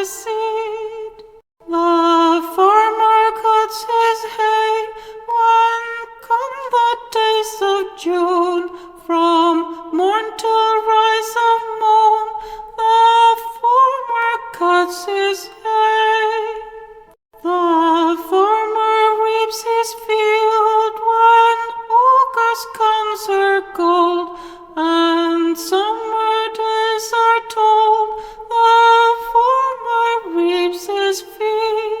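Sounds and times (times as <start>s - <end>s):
woman singing folk tune: 0.0s - 32.0s
singer breathing: 5.0s - 5.3s, 12.4s - 12.7s, 24.3s - 24.7s, 28.2s - 28.5s.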